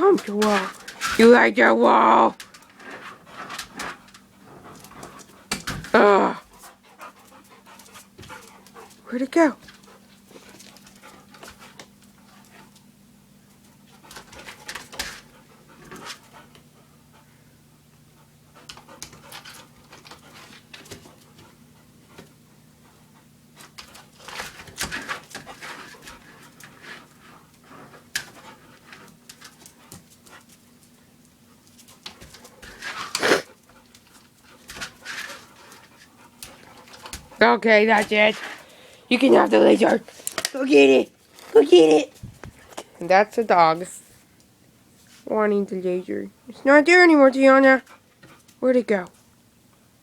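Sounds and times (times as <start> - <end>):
faint low hum: 0.0 - 50.0
dogs panting: 2.4 - 40.3, 47.4 - 48.6.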